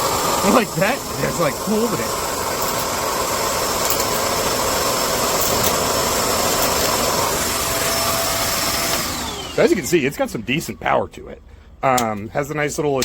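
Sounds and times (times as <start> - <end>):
vacuum cleaner running: 0.0 - 10.1.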